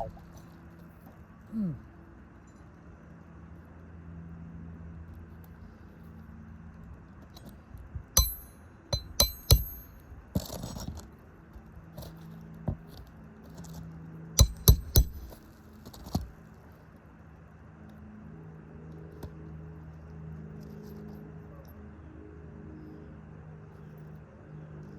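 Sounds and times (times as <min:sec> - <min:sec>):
low steady hum: 0:00.0 - 0:02.7, 0:08.2 - 0:10.6, 0:14.4 - 0:16.2
hammer striking metal: 0:08.2 - 0:10.0, 0:14.4 - 0:15.4.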